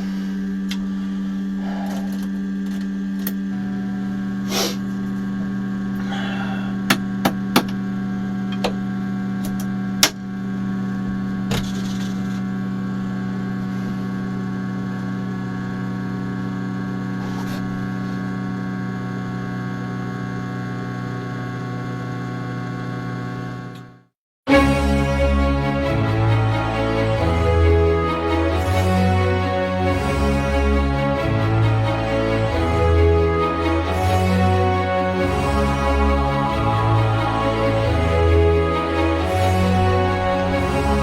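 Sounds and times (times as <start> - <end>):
electrical hum with whine: 0.0 - 24.0.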